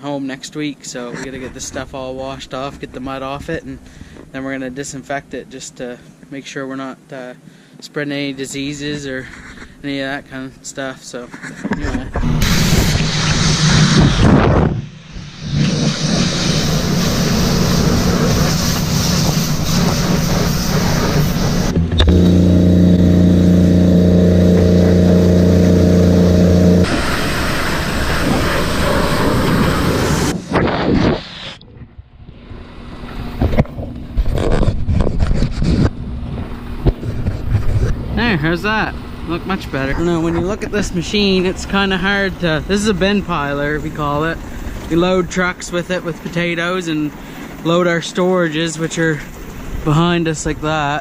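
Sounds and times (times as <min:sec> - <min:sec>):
pressure washer engine drone: 0:12.3 - 0:14.2, 0:14.9 - 0:30.6, 0:35.9 - 0:44.9
high-pressure spray hissing: 0:12.4 - 0:14.3, 0:15.1 - 0:30.4.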